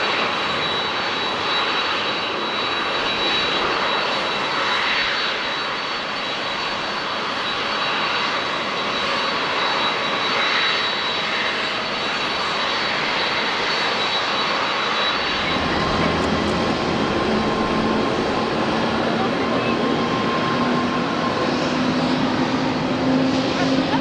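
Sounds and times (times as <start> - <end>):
jet engines low full roar: 0.0 - 24.0
jet engines whining: 0.0 - 24.0.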